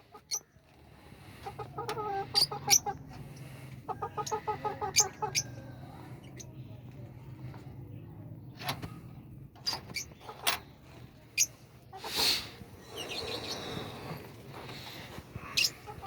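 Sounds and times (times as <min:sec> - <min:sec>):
budgerigars chirping: 0:01.2 - 0:05.5, 0:15.4 - 0:16.0.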